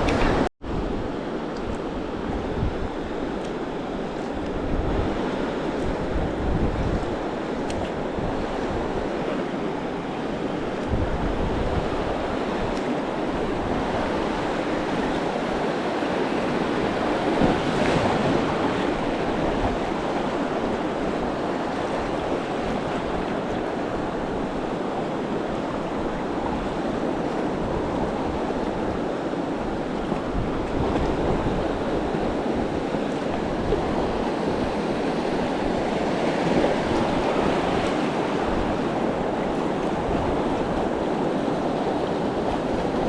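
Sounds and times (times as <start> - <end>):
wind buffeting microphone: 0.0 - 43.0
river water rushing through rapids: 1.3 - 30.8.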